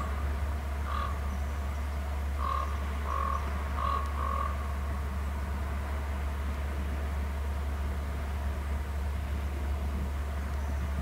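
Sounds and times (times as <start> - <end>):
steady low hum: 0.0 - 11.0
bird calls: 0.8 - 4.6.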